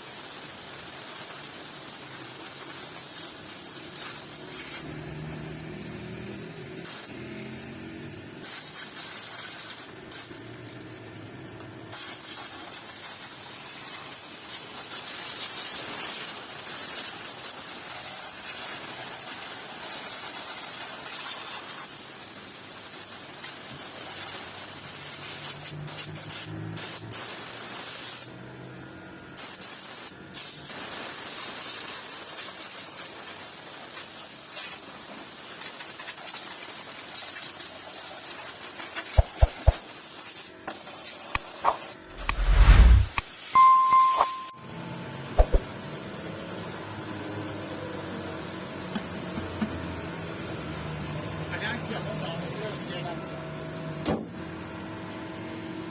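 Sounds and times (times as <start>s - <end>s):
pressure spray gun hissing: 6.8s - 7.2s, 8.4s - 10.3s, 39.1s - 43.2s.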